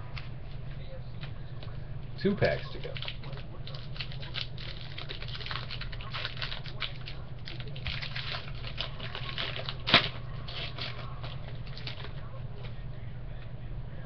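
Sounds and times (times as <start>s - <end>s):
steady low hum: 0.0s - 14.0s
wrapper and cards crinkling: 2.7s - 12.2s.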